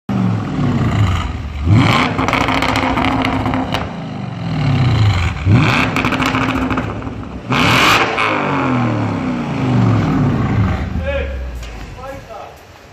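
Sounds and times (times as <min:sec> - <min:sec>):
car engine revving: 0:00.1 - 0:11.8.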